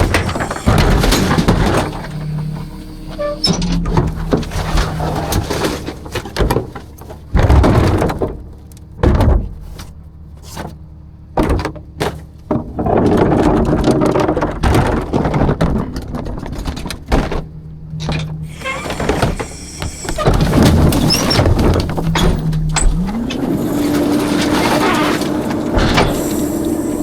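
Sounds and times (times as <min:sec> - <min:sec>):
garbage truck low hum: 0:00.0 - 0:27.0
metal bangs and clatters: 0:13.4 - 0:27.0.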